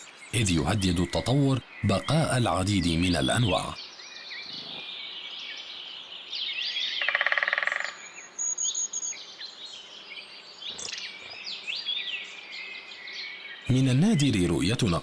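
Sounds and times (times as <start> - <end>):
birds chirping and whistling: 0.0 - 15.0
loud pulsing bird call: 6.6 - 9.4.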